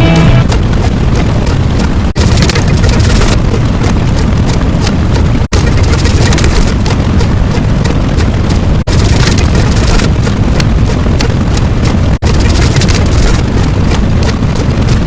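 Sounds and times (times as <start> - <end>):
loud dense noise: 0.0 - 1.1.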